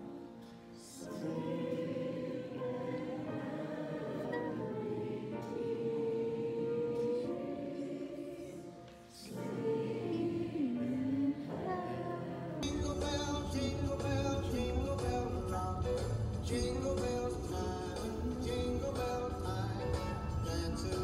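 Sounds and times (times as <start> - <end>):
choir singing: 0.0 - 21.0
music with jingle bells: 12.6 - 21.0.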